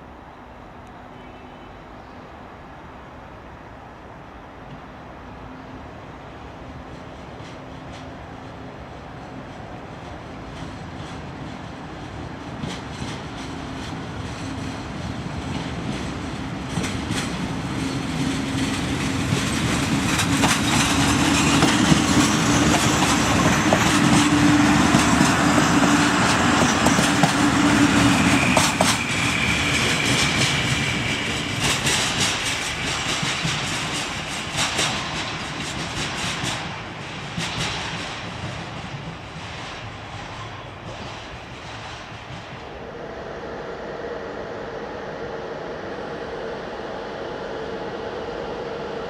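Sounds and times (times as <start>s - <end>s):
train engine humming: 0.0s - 49.0s
train wheels clicking over rail joints: 6.8s - 42.7s
high wheel squeal: 27.5s - 32.0s.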